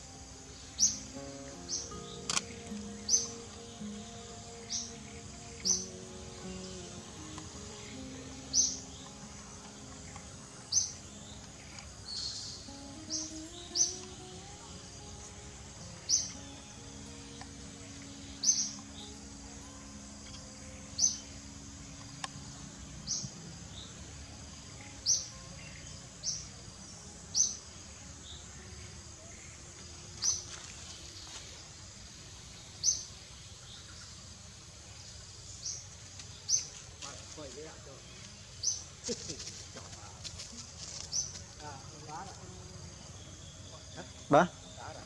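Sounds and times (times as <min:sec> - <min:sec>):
steady outdoor hiss: 0:00.0 - 0:45.0
bird high chirp: 0:00.6 - 0:22.2.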